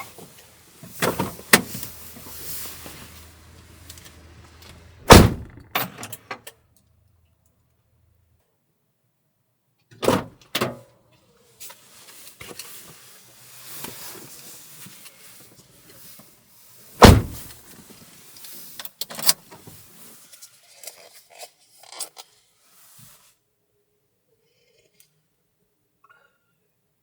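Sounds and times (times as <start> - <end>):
knocks and thuds: 5.0 - 6.0, 17.0 - 17.5.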